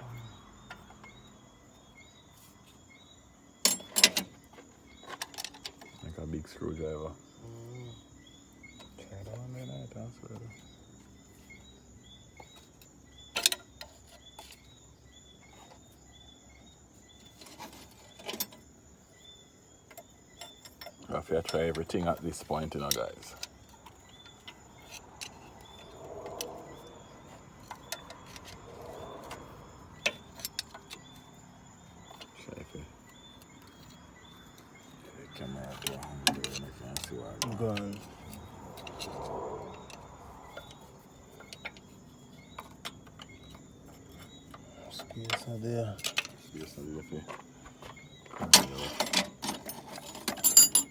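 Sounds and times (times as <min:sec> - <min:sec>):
night insects chirping: 0:00.0 - 0:50.9
scraping rustle: 0:15.4 - 0:19.2
hand tools clicking and tapping: 0:19.8 - 0:26.5, 0:33.3 - 0:39.2, 0:39.8 - 0:50.9.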